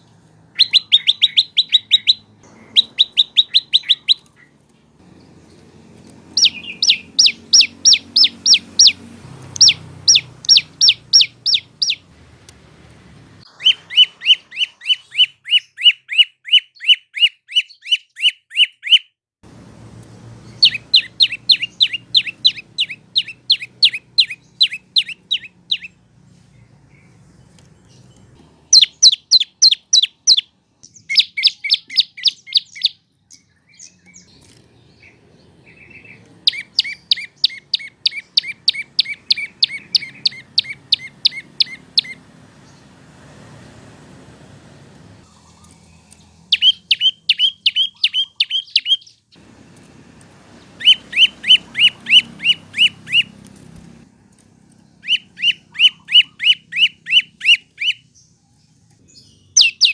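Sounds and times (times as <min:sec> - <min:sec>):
bird singing rapid sharp notes: 0:00.0 - 0:12.1, 0:13.3 - 0:19.2, 0:20.2 - 0:43.7, 0:44.8 - 0:49.5, 0:50.5 - 0:54.0, 0:54.8 - 0:59.9.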